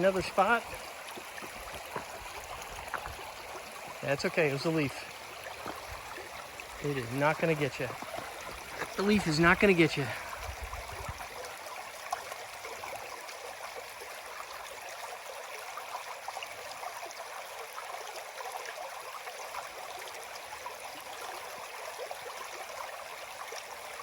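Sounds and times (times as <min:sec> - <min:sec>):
river water rushing: 0:00.0 - 0:13.6.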